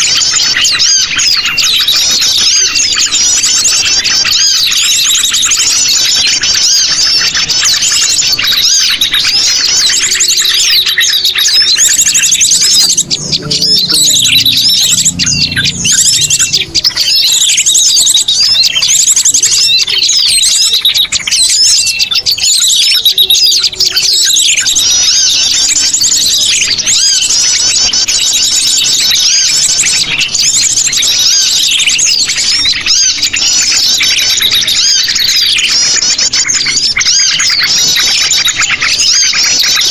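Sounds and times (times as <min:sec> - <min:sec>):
birds chirping rapidly: 0:00.0 - 0:39.9.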